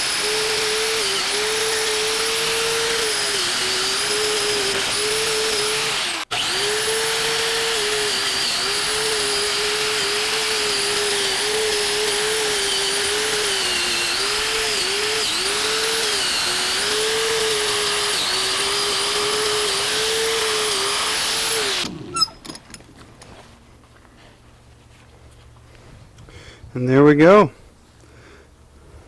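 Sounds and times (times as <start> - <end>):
power tool wire brush on steel: 0.0 - 22.8.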